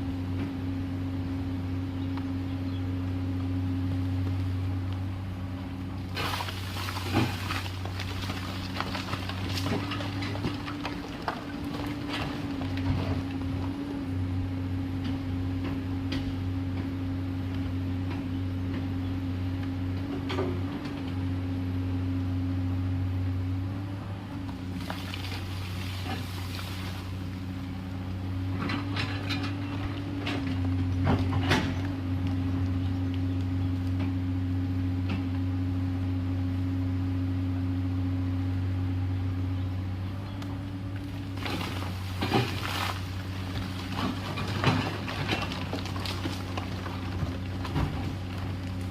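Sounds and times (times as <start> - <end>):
excavator diesel engine running: 0.0 - 48.9
bucket knocking and scraping rock: 6.1 - 13.3, 41.3 - 48.9.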